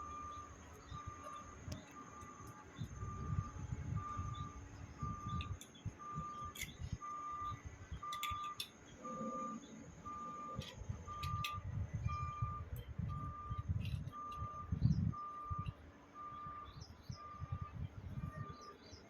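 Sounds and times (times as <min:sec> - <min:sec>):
electronic beeper beeping: 0:00.0 - 0:18.8
metallic clinks of pump parts: 0:05.0 - 0:08.8, 0:10.4 - 0:11.7, 0:12.7 - 0:15.8.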